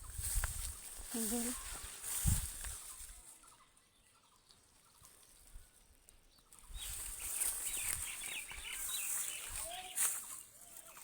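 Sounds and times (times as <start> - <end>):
chickens calling: 6.6 - 11.0.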